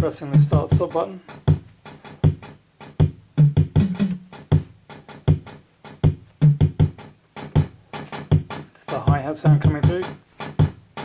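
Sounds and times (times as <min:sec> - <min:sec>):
hi-hat ticks: 0:00.0 - 0:11.0
bass drum thuds: 0:03.0 - 0:05.4.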